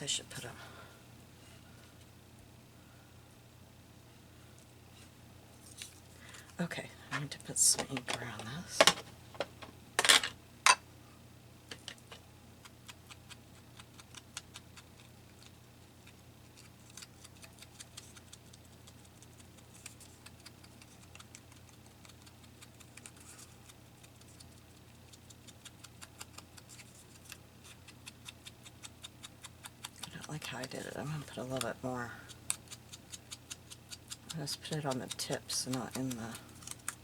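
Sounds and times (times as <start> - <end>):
ink pad dabbing on paper: 34.2 - 36.4.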